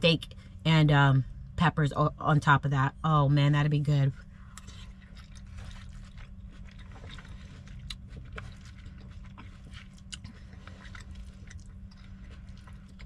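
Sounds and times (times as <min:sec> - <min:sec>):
low hum: 0:00.0 - 0:13.0
person chewing with mouth smacks: 0:04.3 - 0:13.0.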